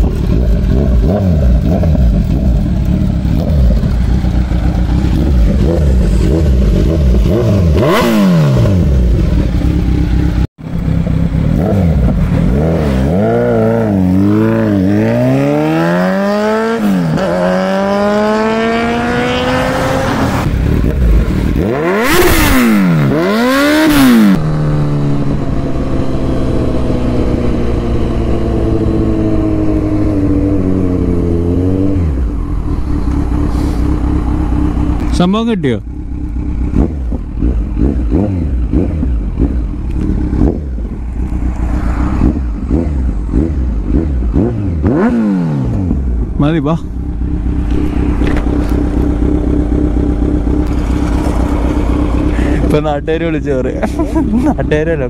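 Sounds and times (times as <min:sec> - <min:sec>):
motorcycle engine revving: 0:00.0 - 0:55.0
exhaust cracks: 0:32.3 - 0:45.0, 0:45.6 - 0:55.0.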